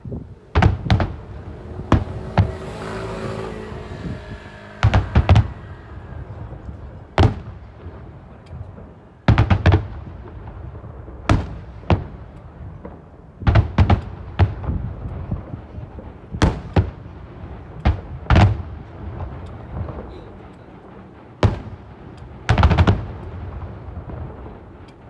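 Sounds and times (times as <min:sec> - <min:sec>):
fireworks bangs: 0:00.0 - 0:25.0
low rumble after bursts: 0:00.2 - 0:13.4.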